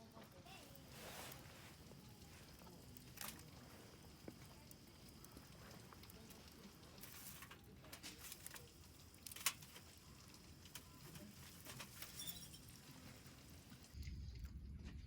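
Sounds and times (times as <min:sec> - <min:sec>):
campfire crackling: 0:00.0 - 0:14.7.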